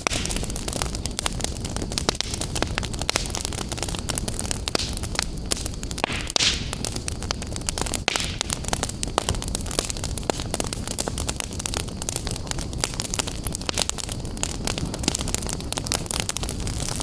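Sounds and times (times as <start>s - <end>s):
fire hissing: 0.0s - 17.0s
wood fire crackling and popping: 0.0s - 17.0s.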